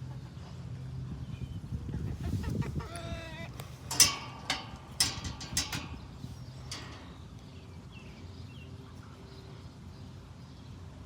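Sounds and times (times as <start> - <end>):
chickens clucking: 1.8 - 7.1.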